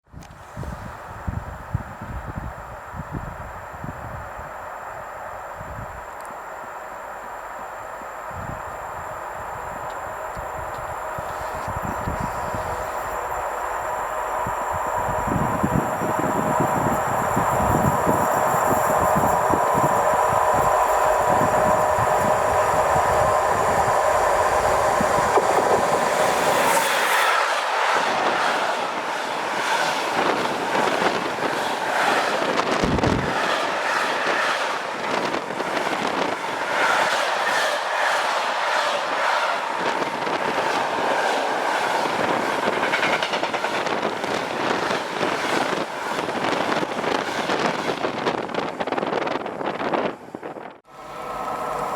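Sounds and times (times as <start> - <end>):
steady train whine: 0.1 - 51.9
train wheels clacking on rails: 9.6 - 49.7.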